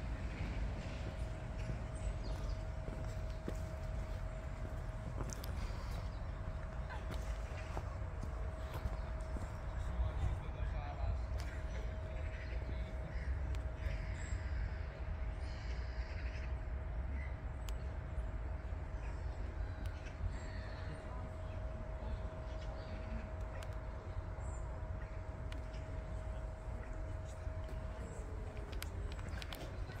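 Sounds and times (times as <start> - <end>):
faint steady whine: 0.0 - 30.0
steady low rumble: 0.0 - 30.0
birds cawing: 11.9 - 17.3.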